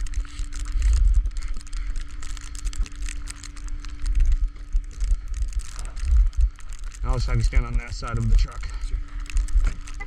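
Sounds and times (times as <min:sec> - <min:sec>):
crackling ticks: 0:00.0 - 0:10.0
faint steady hum: 0:00.0 - 0:10.0
wind rumble on microphone: 0:00.0 - 0:10.0.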